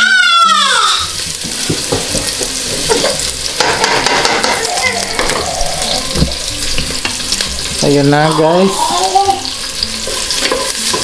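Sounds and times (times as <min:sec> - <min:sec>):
vegetables sizzling in hot oil: 0:00.0 - 0:11.0
wooden spoon knocking and scraping pot: 0:01.4 - 0:05.5, 0:10.0 - 0:11.0.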